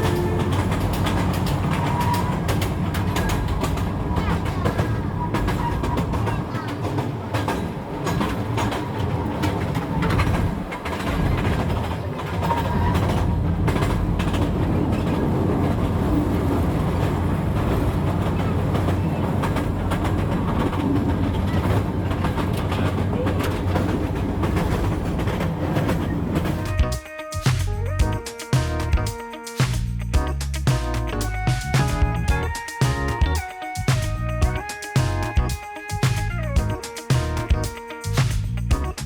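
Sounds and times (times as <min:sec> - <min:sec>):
wheels clicking over rail joints: 0:00.0 - 0:29.1
train rumbling on rails: 0:00.0 - 0:39.0.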